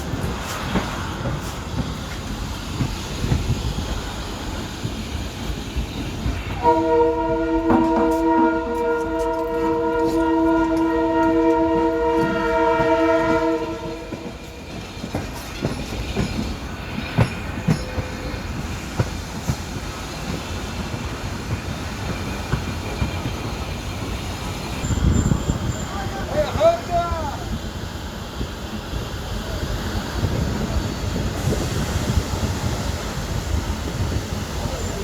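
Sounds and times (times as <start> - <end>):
train wheels clicking on rails: 0.0 - 35.0
train horn blast: 6.6 - 14.5.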